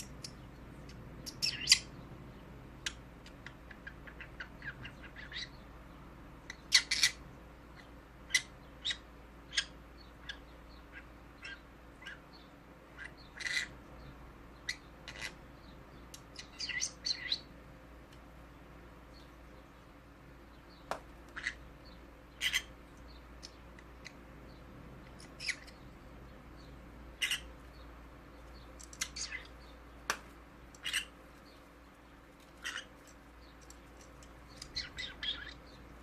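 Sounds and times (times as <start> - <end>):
parrot chirps and squeaks: 0.0 - 2.0, 2.8 - 5.6, 6.5 - 7.2, 8.3 - 12.3, 13.0 - 13.8, 14.6 - 15.4, 16.3 - 17.5, 21.3 - 21.6, 22.4 - 22.8, 25.1 - 25.9, 27.2 - 27.6, 28.6 - 29.6, 30.8 - 31.2, 32.4 - 35.8.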